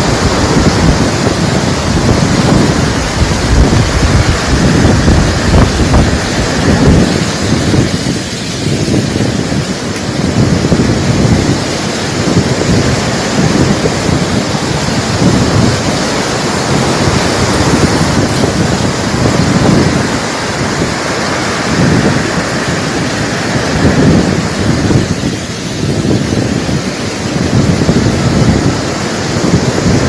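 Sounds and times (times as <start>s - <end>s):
heavy rain hissing: 0.0s - 30.0s
wind gusts on microphone: 0.0s - 30.0s.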